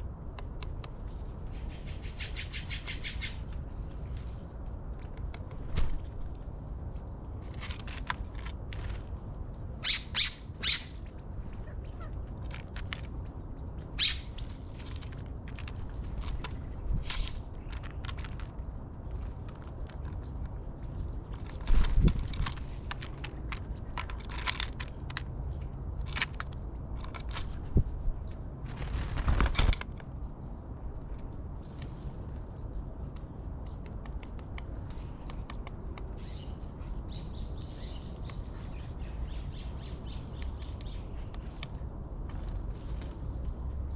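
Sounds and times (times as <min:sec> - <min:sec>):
rustles: 0:00.0 - 0:43.9
bird wing flutters: 0:05.4 - 0:06.4, 0:28.6 - 0:29.8.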